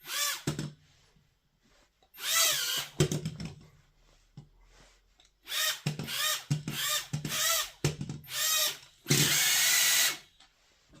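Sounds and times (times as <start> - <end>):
small electric motor whirring: 2.2 - 2.9.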